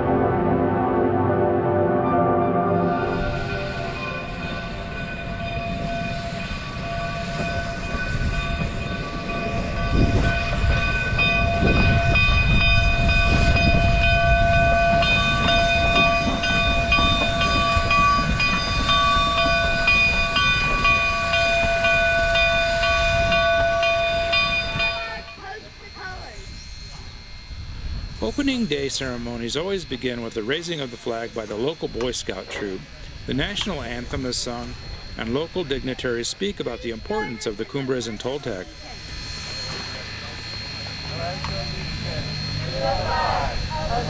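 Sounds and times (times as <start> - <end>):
steam locomotive whistle: 0.0 - 27.3, 37.0 - 44.0
low locomotive rumble: 0.0 - 37.3, 38.1 - 44.0.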